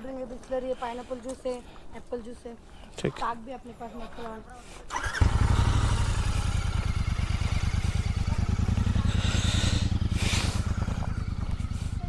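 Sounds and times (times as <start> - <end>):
motorcycle engine idling: 4.9 - 12.0.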